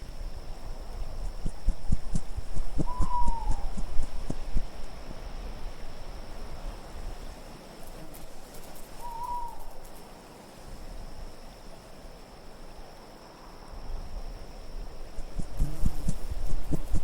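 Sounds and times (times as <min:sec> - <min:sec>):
steady wind: 0:00.0 - 0:17.0
owl hooting: 0:01.8 - 0:04.7, 0:09.0 - 0:09.8.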